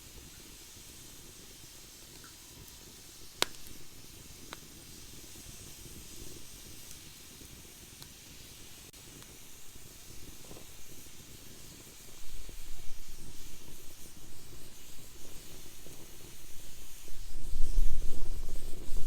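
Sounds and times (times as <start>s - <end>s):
campfire hissing: 0.0s - 19.0s
fire crackling and popping: 0.0s - 19.0s.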